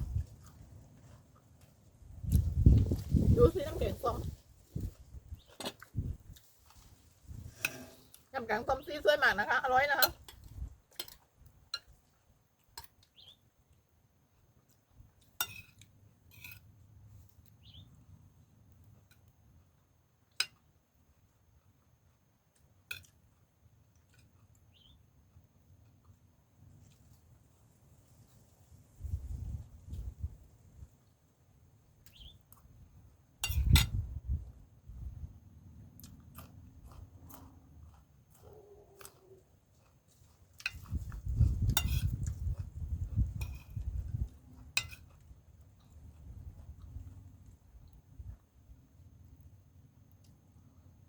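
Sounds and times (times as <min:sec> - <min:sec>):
utensil clinking against a dish: 0:15.4 - 0:16.6, 0:33.4 - 0:34.0, 0:41.7 - 0:42.3, 0:44.8 - 0:45.2
chewing with sharp clicks: 0:20.3 - 0:27.3, 0:35.8 - 0:48.5
spoon clicking on a dish: 0:33.4 - 0:34.0.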